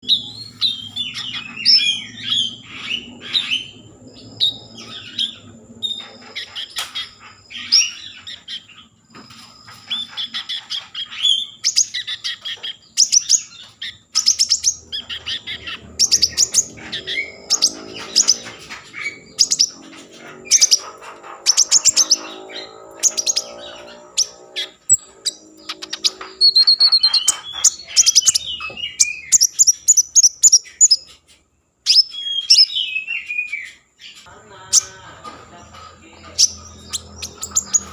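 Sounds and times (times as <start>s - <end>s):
songbird chirping and trilling: 0.0s - 37.9s.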